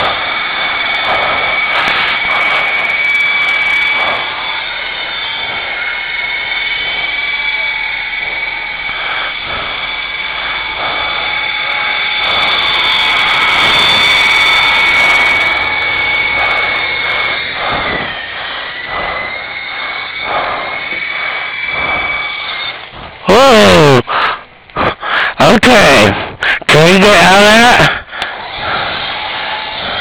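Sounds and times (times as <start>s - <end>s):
toy helicopter motor whining: 0.0s - 30.0s.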